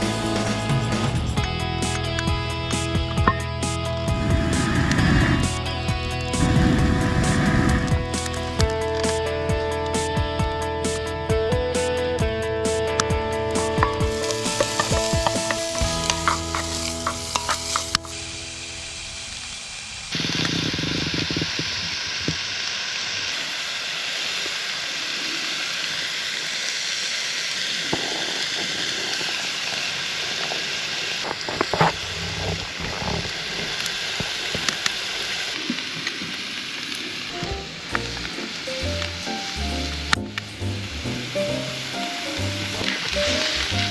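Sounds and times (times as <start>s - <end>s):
soft music: 0.0s - 19.0s, 37.3s - 43.9s
food sizzling in a pot: 13.6s - 21.2s, 37.6s - 43.9s.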